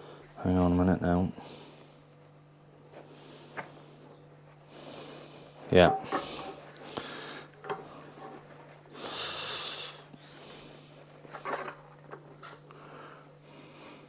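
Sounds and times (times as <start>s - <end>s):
man exhaling with a hiss: 8.9s - 10.9s.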